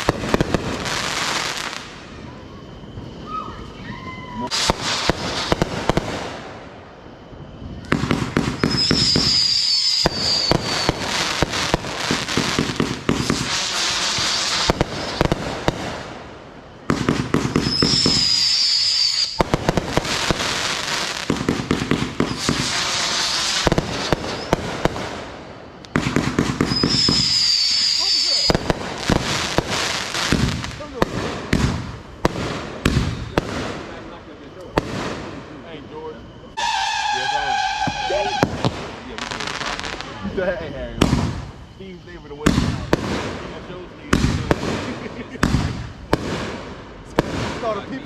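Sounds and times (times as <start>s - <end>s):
fireworks crackling pops: 0.0s - 2.1s, 4.4s - 6.5s, 7.8s - 16.2s, 16.8s - 35.5s, 36.2s - 40.4s, 41.0s - 48.0s
firework whistle: 0.0s - 48.0s.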